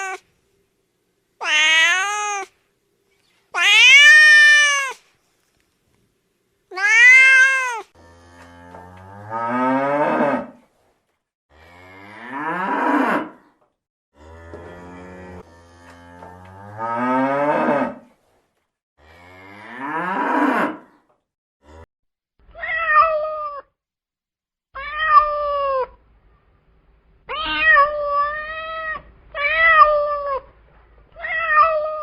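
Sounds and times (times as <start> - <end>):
cat meowing: 0.0 - 0.2, 1.4 - 2.5, 3.6 - 5.0, 6.7 - 7.9, 22.5 - 23.7, 24.8 - 26.0, 27.3 - 30.5, 31.2 - 32.0
cow mooing: 8.0 - 10.6, 14.2 - 18.1, 19.0 - 20.9.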